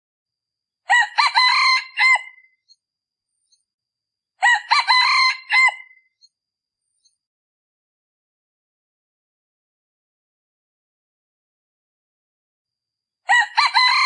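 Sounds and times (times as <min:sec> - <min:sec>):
rooster crowing: 0:00.9 - 0:02.4, 0:04.4 - 0:06.0, 0:13.3 - 0:14.0.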